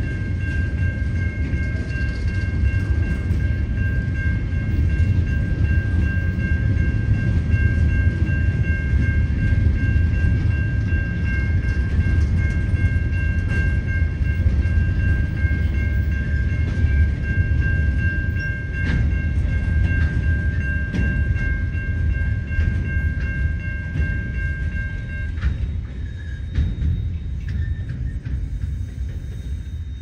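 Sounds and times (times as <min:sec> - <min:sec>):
crossing warning bell ringing: 0:00.0 - 0:30.0
train wheels rumbling on rails: 0:00.0 - 0:30.0
wheels clacking over rail joints: 0:00.0 - 0:30.0.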